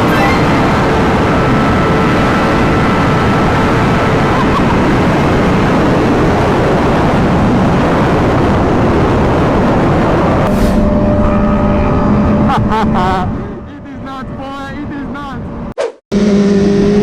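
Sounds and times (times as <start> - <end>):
wind rush on microphone: 0.0 - 13.6
motorcycle engine running high: 0.0 - 17.0.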